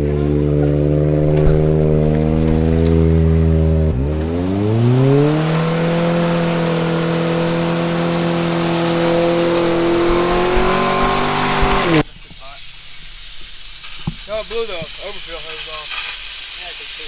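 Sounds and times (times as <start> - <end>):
car engine revving: 0.0 - 12.1.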